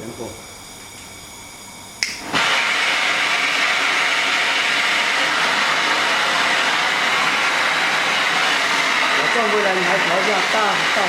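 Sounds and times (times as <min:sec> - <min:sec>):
gas torch flame hissing: 0:02.0 - 0:11.0.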